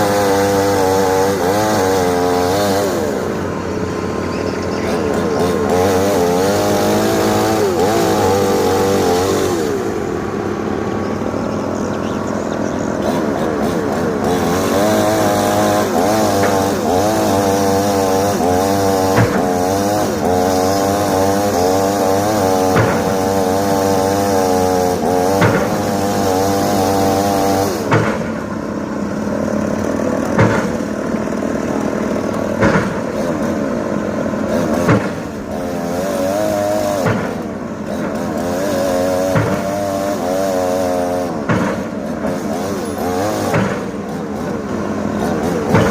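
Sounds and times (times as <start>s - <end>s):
excavator diesel engine: 0.0s - 45.9s
hydraulics whining: 0.0s - 45.9s
sharp knocks: 19.1s - 19.6s, 22.7s - 23.2s, 27.9s - 28.4s, 30.3s - 30.8s, 32.6s - 33.0s, 39.2s - 39.8s, 41.4s - 41.9s, 45.6s - 45.9s.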